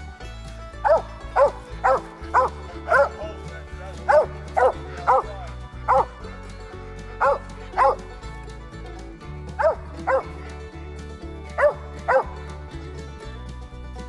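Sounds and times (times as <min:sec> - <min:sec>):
dog barking: 0:00.8 - 0:03.3, 0:03.9 - 0:06.1, 0:07.2 - 0:08.0, 0:09.6 - 0:10.5, 0:11.6 - 0:12.4.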